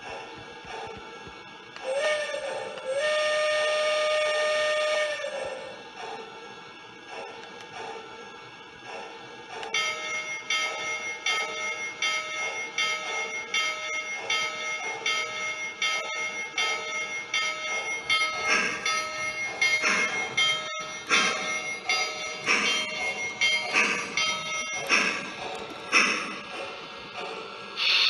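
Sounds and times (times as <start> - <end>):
toy train electronic bell ringing: 9.8 - 26.8.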